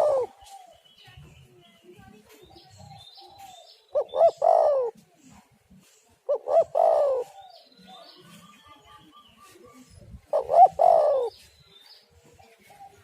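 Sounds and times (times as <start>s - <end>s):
dove cooing: 0.0s - 0.8s, 2.8s - 5.0s, 6.2s - 8.3s, 9.5s - 11.5s
small birds chirping faintly: 0.0s - 13.0s.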